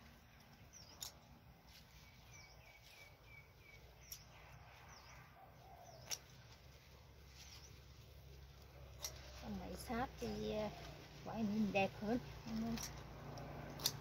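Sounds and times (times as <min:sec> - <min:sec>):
birds chirping: 0:00.2 - 0:06.5
sharp clicks: 0:12.6 - 0:14.0.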